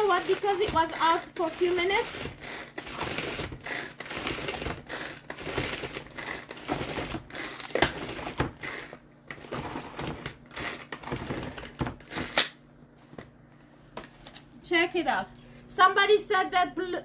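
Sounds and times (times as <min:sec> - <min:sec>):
crushing cookies in plastic container: 0:00.0 - 0:12.4.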